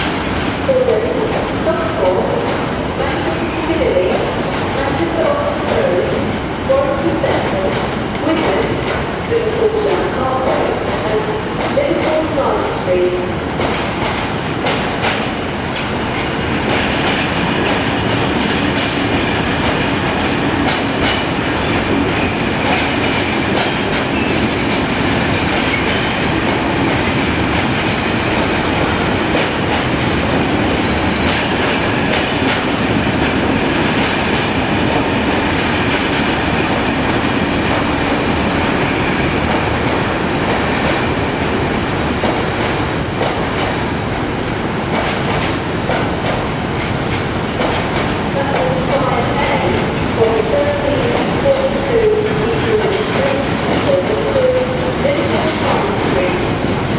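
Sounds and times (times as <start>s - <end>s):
train rumbling along track: 0.0s - 56.9s
wheels clacking over rail joints: 13.6s - 56.9s.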